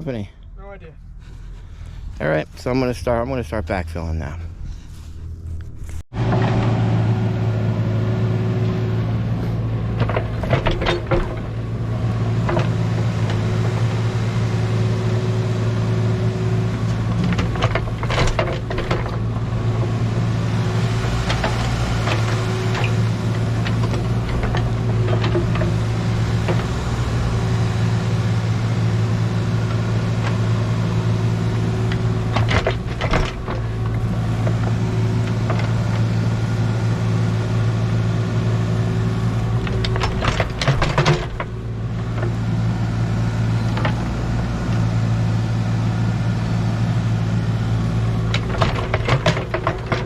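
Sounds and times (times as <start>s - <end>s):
earthmoving machine engine running: 0.0s - 50.0s.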